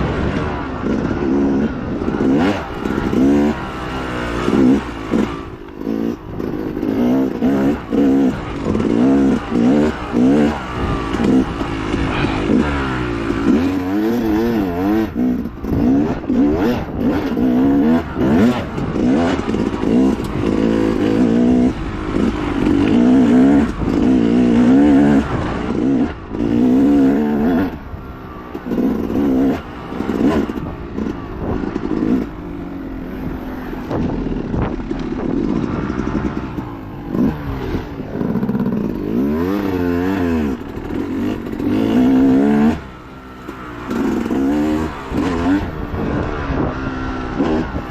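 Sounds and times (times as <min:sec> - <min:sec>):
dirt bike engine revving: 0:00.0 - 0:47.9
knocks and clatter from bike: 0:33.4 - 0:39.5.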